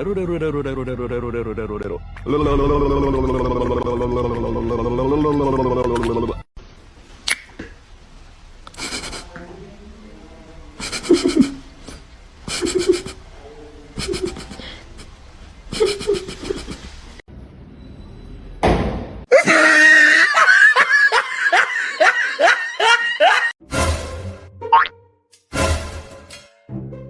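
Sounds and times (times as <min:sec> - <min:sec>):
person laughing: 0:02.5 - 0:06.3, 0:08.8 - 0:09.3, 0:10.8 - 0:13.2, 0:14.0 - 0:17.0, 0:19.3 - 0:23.6.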